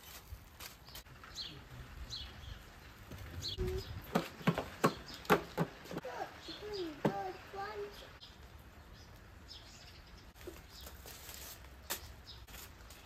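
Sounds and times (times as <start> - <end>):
birds chirping: 0.8 - 11.1, 11.7 - 13.0
sharp knocks: 4.1 - 6.0.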